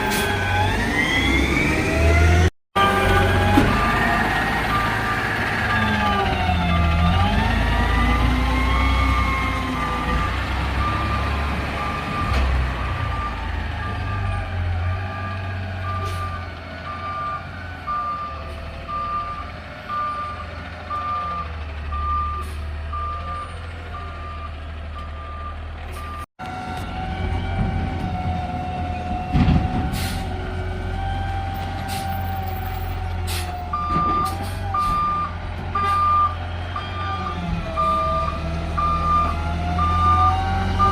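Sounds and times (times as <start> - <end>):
diesel engine rumble: 0.0 - 40.9
reverse alarm beeping: 33.7 - 40.9.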